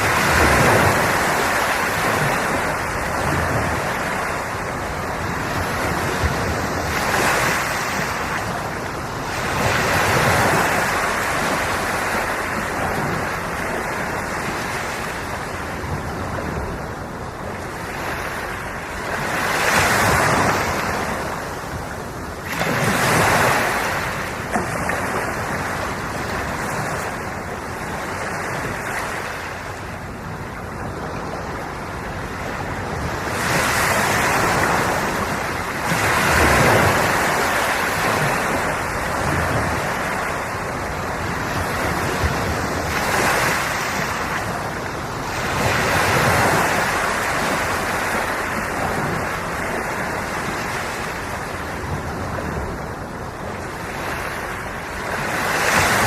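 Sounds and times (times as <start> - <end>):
ocean waves breaking on shore: 0.0 - 56.0
wind on microphone: 0.0 - 56.0.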